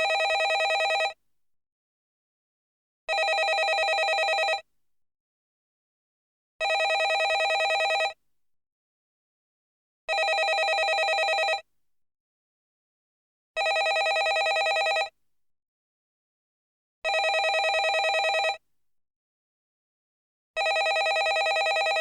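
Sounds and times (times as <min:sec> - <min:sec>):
telephone bell ringing: 0:00.0 - 0:01.2, 0:03.1 - 0:04.6, 0:06.6 - 0:08.2, 0:10.1 - 0:11.6, 0:13.6 - 0:15.1, 0:17.1 - 0:18.6, 0:20.6 - 0:22.0.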